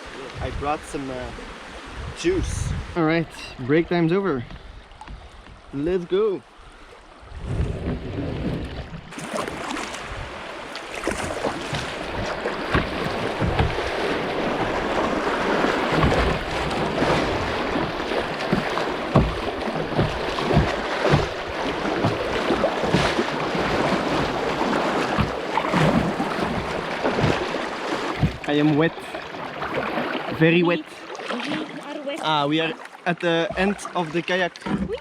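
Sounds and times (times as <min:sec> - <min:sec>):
water splashing around kayak: 0:00.0 - 0:35.0
wind buffeting microphone: 0:00.4 - 0:03.0, 0:07.1 - 0:27.6.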